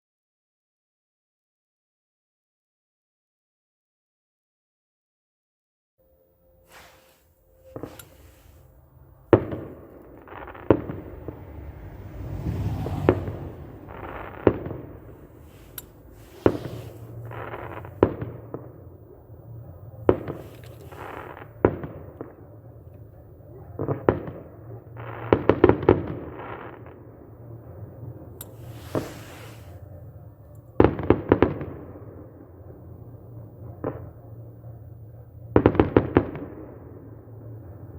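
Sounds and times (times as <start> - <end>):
fireworks rumble: 6.6 - 37.9
fireworks bursting bangs: 6.7 - 19.0, 20.1 - 22.7, 23.8 - 27.2, 28.4 - 29.8.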